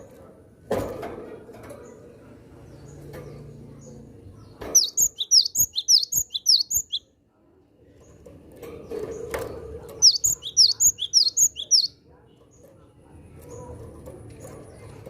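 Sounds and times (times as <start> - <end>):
bird singing sharp high notes: 4.8 - 7.0, 10.0 - 11.9.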